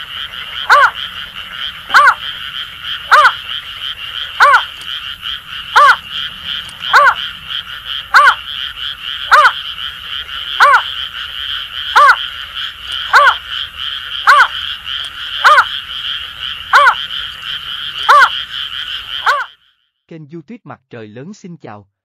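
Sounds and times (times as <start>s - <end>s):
frogs chorus: 0.0s - 20.0s
bird hooting notes: 4.4s - 4.9s, 5.6s - 7.5s.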